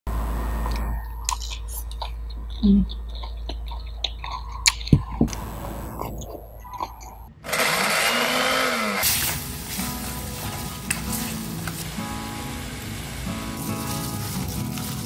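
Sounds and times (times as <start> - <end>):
chewing and mouth sounds: 0.7 - 7.3
electric mini chopper whirring: 7.4 - 9.4.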